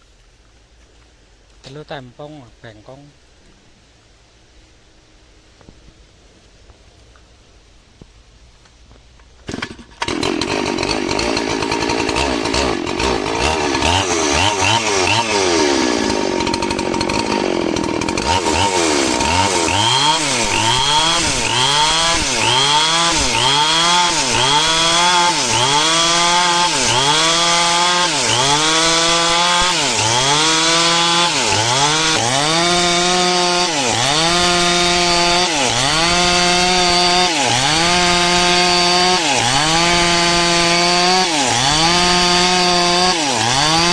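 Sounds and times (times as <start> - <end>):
chainsaw cutting log: 9.4 - 43.9.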